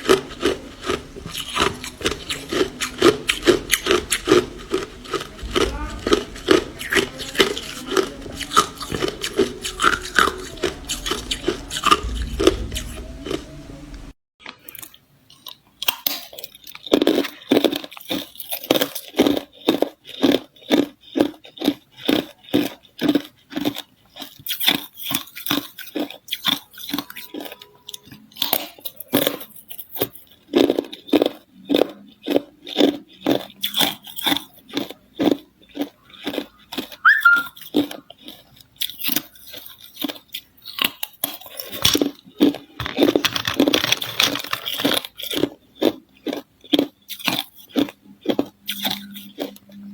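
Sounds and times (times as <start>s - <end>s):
ice being chewed: 0.0s - 13.4s, 14.4s - 49.9s.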